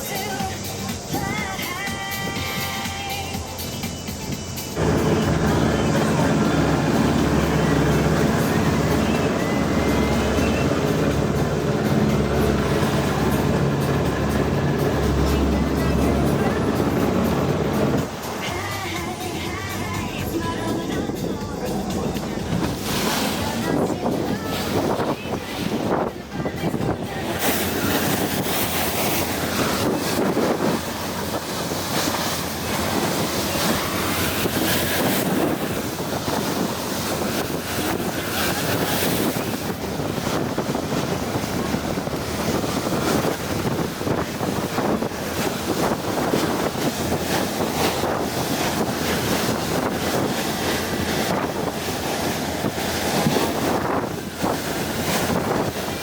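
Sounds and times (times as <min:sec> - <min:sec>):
water rushing against boat: 0:00.0 - 0:56.0
wind buffeting microphone: 0:04.8 - 0:18.6, 0:19.8 - 0:56.0.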